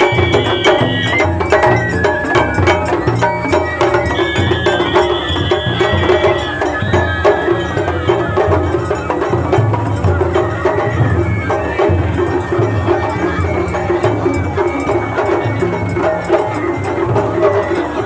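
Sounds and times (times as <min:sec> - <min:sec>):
drums beating: 0:00.0 - 0:18.0
high flute melody: 0:00.0 - 0:18.0.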